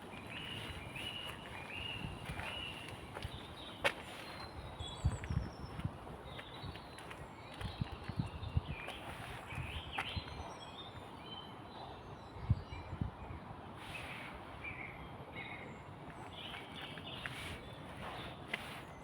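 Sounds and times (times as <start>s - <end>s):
soft footsteps: 0.0s - 10.2s, 16.1s - 19.0s
small birds chirping: 0.0s - 13.0s, 13.8s - 19.0s.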